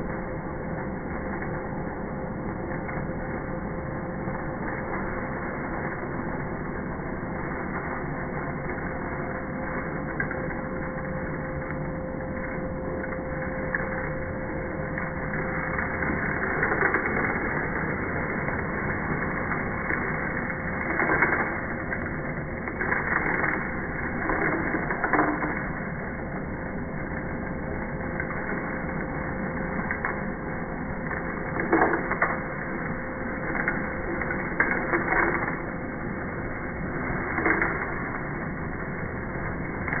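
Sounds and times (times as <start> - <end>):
beads crackling up a hose: 15.0 - 40.0.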